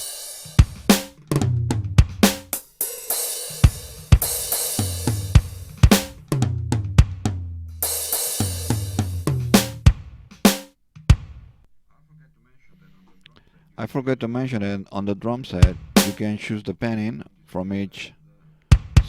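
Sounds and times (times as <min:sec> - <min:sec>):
drum machine groove: 0:00.0 - 0:11.6, 0:15.6 - 0:16.2, 0:18.7 - 0:19.0.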